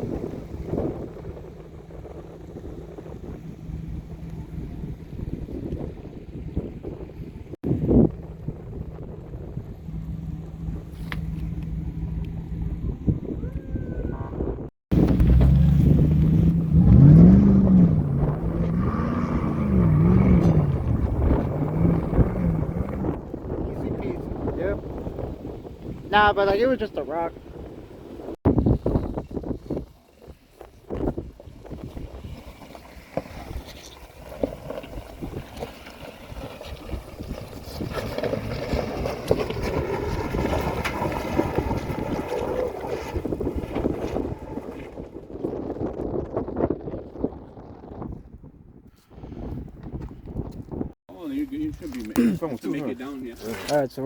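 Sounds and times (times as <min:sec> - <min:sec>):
off-road vehicle engine running: 0:00.0 - 0:47.4
wind buffeting microphone: 0:00.0 - 0:54.0
vehicle engine revving: 0:14.5 - 0:26.0, 0:33.4 - 0:45.1.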